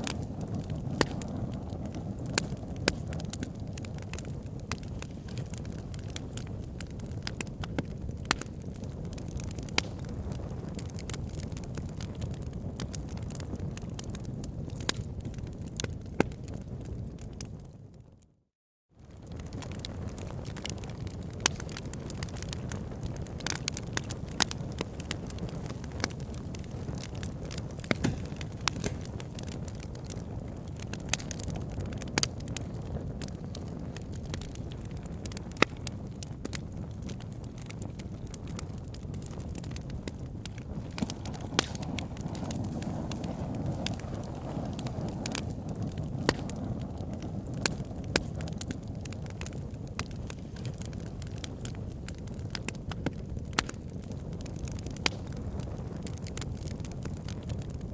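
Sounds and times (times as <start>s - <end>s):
wood fire crackling and popping: 0.0s - 18.0s, 19.0s - 57.9s
rumble of flames: 0.0s - 57.9s.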